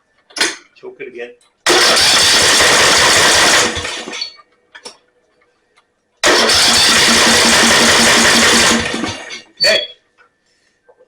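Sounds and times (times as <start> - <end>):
mower engine cranking: 1.7 - 4.4, 6.2 - 9.9.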